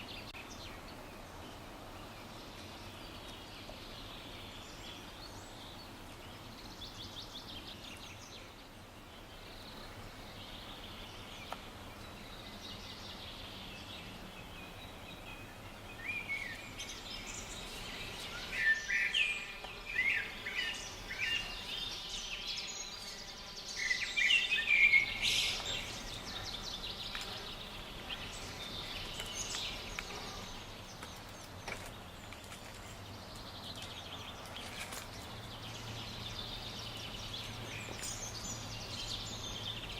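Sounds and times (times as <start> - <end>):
faint birdsong: 0.0 - 39.9
outdoor background: 0.0 - 39.9
loud bird chirping calls: 10.4 - 32.1.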